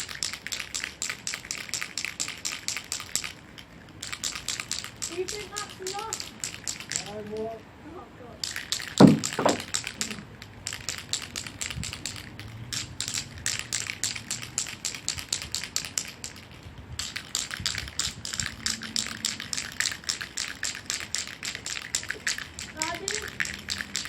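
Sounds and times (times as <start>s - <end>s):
spray can ball rattling: 0.0s - 7.6s, 8.4s - 24.0s
short thud: 9.0s - 9.7s.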